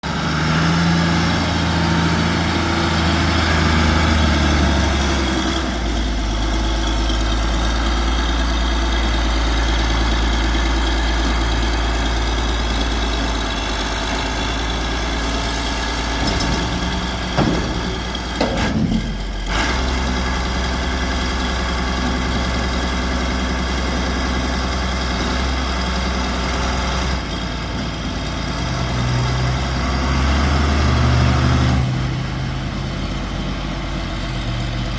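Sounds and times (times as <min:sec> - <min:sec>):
diesel engine running: 0:00.0 - 0:34.9
short knocks: 0:16.1 - 0:19.2.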